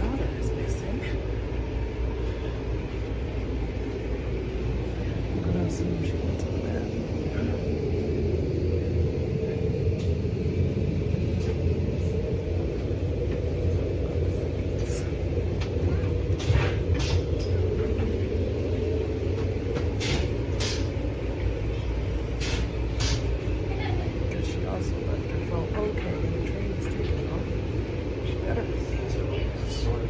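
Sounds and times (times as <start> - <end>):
train car low rumble: 0.0 - 30.0.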